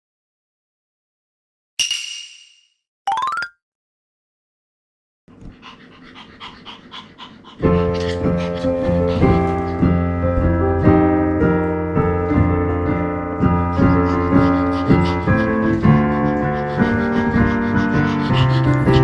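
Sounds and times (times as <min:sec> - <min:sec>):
piano chords: 0:07.6 - 0:19.0.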